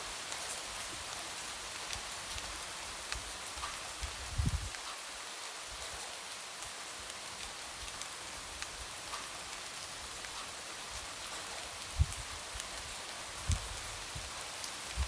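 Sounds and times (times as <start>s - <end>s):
light rain on a window: 0.0s - 15.0s
raindrop ticks: 10.2s - 10.6s.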